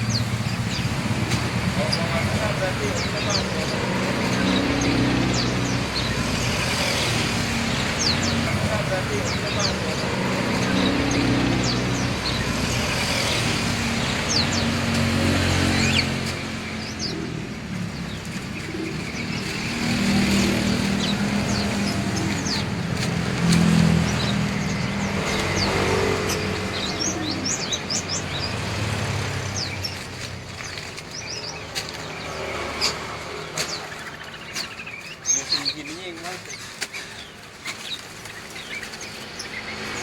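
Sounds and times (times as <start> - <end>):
road traffic hum: 0.0 - 40.0
songbirds chirping and twittering: 0.0 - 40.0.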